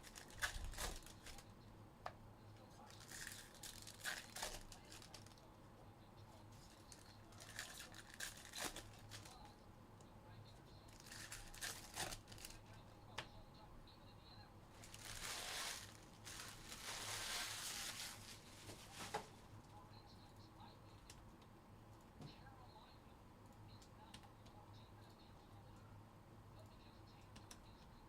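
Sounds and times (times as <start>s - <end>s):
card pack wrappers tearing: 0.0s - 1.4s, 2.9s - 5.4s, 6.8s - 9.4s, 11.0s - 12.6s, 14.8s - 19.3s.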